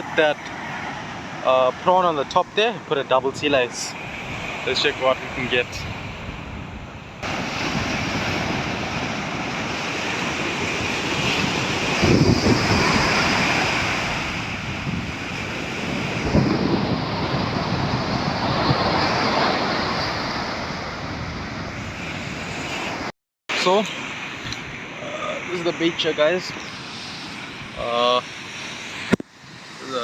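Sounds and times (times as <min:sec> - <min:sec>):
wind buffeting microphone: 0:00.0 - 0:23.1
surf washing up a beach: 0:00.0 - 0:30.0.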